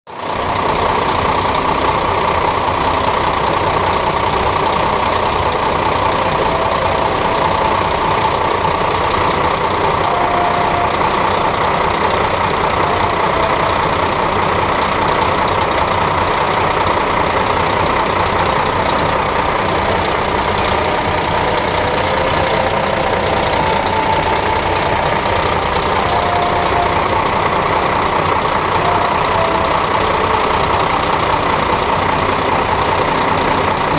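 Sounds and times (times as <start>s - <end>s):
diesel railcar engine idling: 0.1s - 33.9s.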